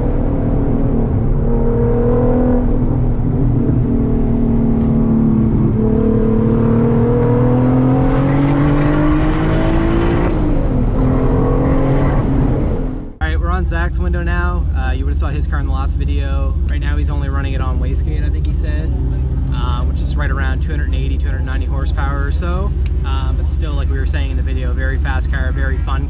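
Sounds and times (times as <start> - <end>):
car engine under load: 0.0 - 26.0.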